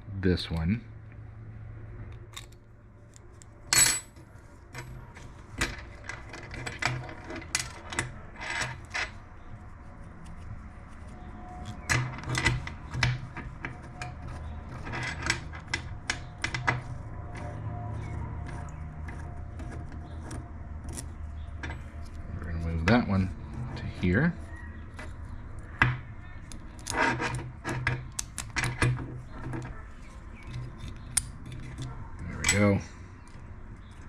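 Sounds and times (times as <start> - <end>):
metal parts clicking and clinking: 2.1 - 9.2, 11.7 - 17.5.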